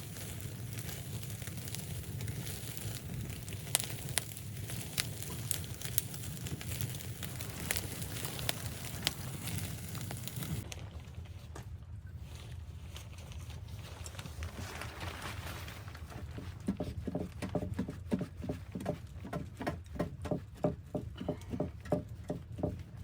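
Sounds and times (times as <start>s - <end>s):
footsteps in snow: 0.0s - 10.6s
steady low rumble: 0.0s - 10.9s.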